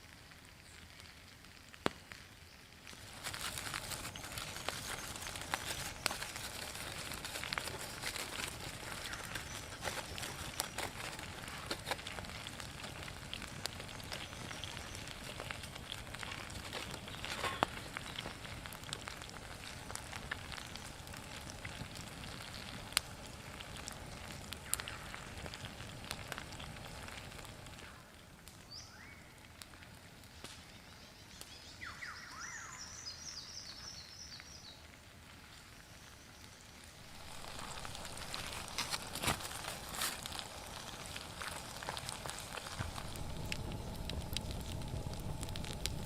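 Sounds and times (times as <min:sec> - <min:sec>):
campfire crackling and popping: 0:00.0 - 0:46.0
bird whistle: 0:31.8 - 0:33.8.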